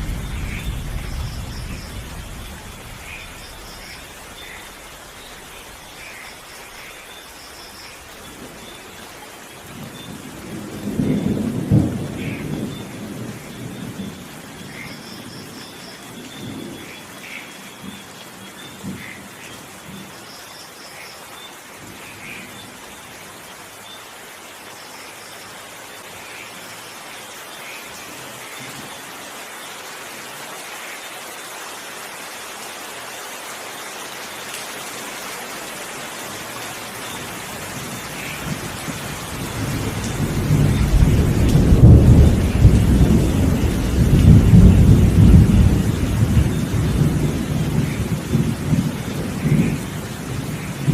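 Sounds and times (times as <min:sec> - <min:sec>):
thunder rolling: 0:00.0 - 0:04.5, 0:38.6 - 0:50.9
steady rain falling: 0:00.0 - 0:50.9.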